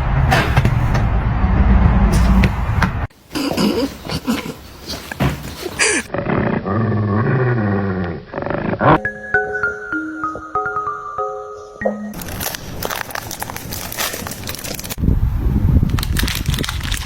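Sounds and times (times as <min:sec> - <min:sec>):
animal growling call: 0:03.4 - 0:09.0
music: 0:09.0 - 0:12.2.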